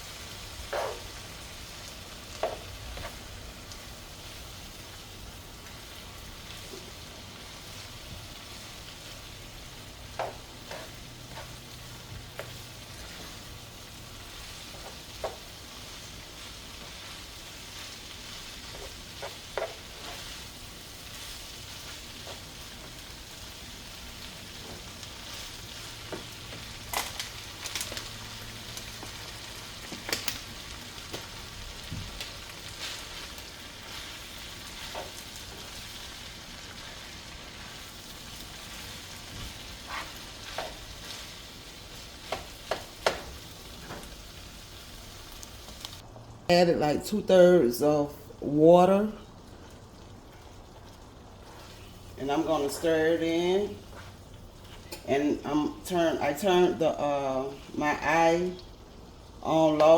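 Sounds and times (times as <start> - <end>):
meat sizzling in a pan: 0.0 - 46.0.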